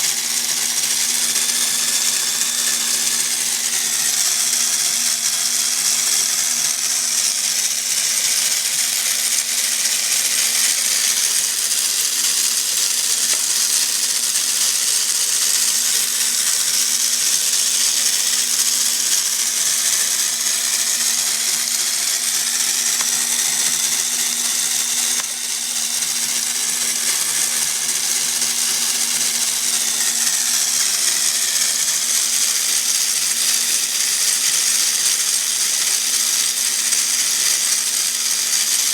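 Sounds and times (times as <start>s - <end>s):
electric motor whirring: 0.0s - 38.9s.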